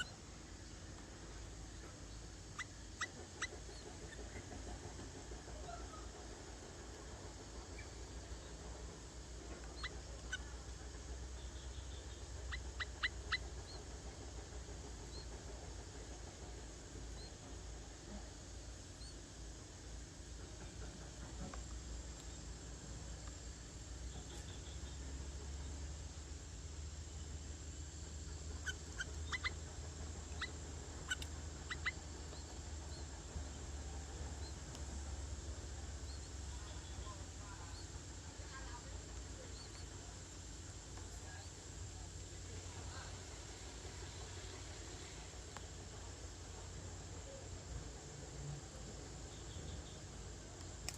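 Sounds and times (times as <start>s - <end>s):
faint chirps: 0.0s - 50.9s
steady low hum: 0.0s - 50.9s
steady low rumble: 0.1s - 50.9s
high bird calls: 28.2s - 33.1s
bird giving sharp calls: 28.6s - 29.6s.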